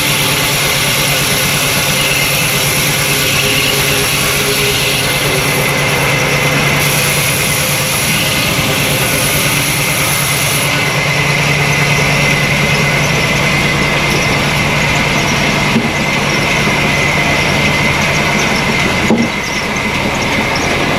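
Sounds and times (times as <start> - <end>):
sawmill machinery humming: 0.0 - 20.9.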